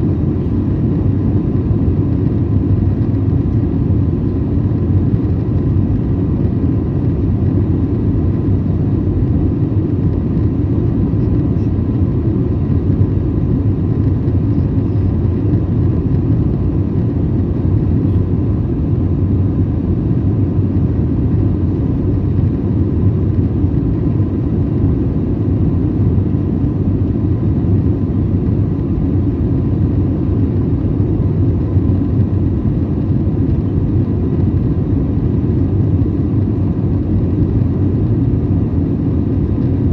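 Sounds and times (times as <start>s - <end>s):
cabin systems hum: 0.0s - 39.9s
jet engines and rushing air: 0.0s - 39.9s.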